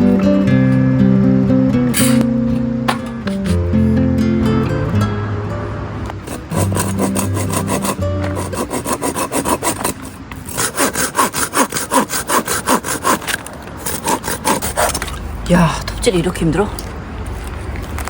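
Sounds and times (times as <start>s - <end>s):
hand saw cutting wood: 6.3s - 15.2s.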